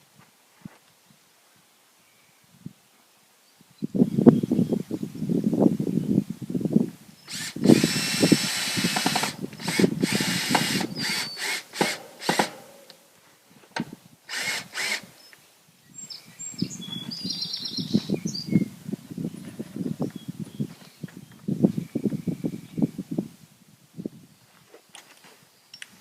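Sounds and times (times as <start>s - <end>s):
power drill whine: 7.3s - 12.7s, 14.3s - 15.1s.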